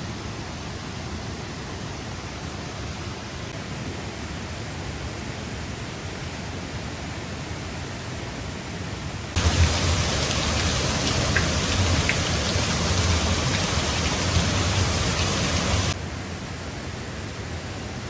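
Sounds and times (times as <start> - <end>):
heavy rain pouring: 9.4 - 16.0
loud downpour: 9.4 - 16.0
rushing water: 9.4 - 16.0.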